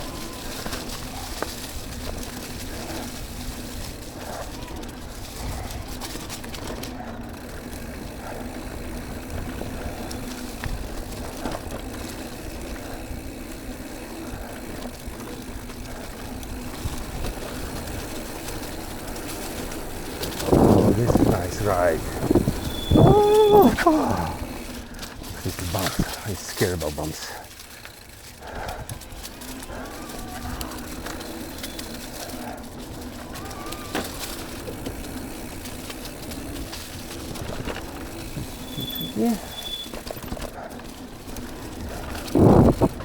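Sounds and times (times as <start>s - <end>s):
bike rattling and clicking: 0.0s - 43.0s
tyres rolling on dirt: 0.0s - 43.0s
wind rumble on microphone: 20.0s - 23.7s, 41.8s - 43.0s.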